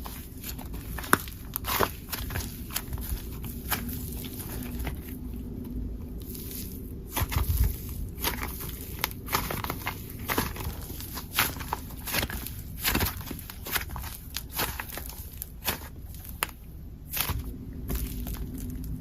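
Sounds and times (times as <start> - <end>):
heavy slime squish: 0.0 - 19.0.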